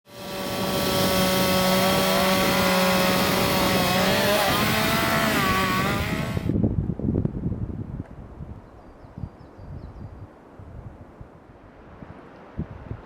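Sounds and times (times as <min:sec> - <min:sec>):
chainsaw cutting wood: 0:00.1 - 0:06.6.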